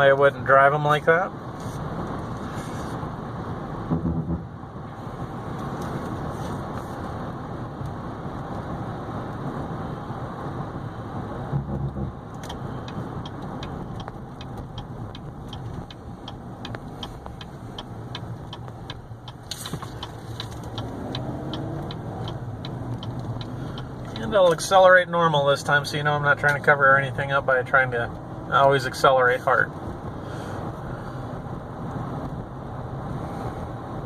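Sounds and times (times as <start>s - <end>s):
car engine and road noise: 0.0s - 34.0s
turn signal ticking: 11.5s - 28.9s.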